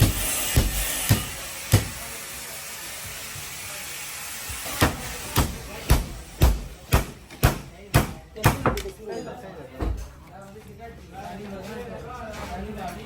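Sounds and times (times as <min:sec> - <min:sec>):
hammer blows on car panel: 0:00.0 - 0:02.0, 0:04.8 - 0:08.8.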